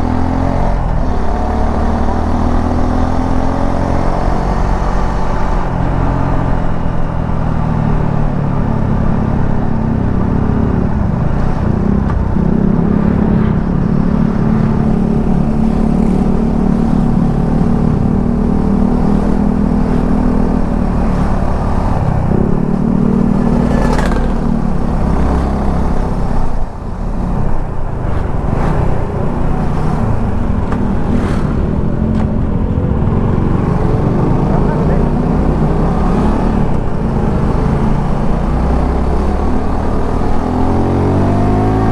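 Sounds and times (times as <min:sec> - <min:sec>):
road and wind noise: 0:00.0 - 0:41.9
motorcycle engine running: 0:09.9 - 0:38.4.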